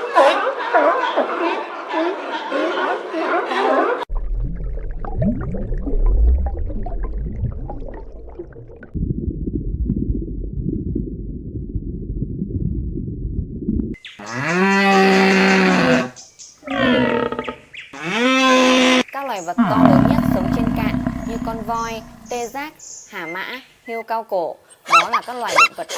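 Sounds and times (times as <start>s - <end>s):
underwater rumble and gurgling: 4.1s - 14.0s, 19.8s - 22.4s
loud steady-pitched animal call: 19.6s - 22.5s.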